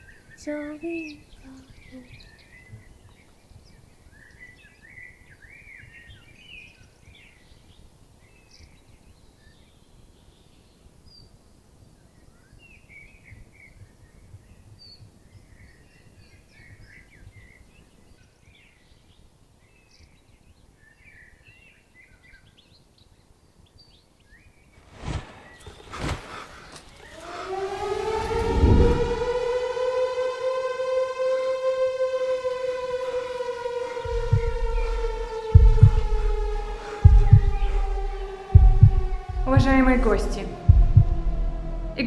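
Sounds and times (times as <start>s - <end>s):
steady low background noise: 33.8s - 42.0s.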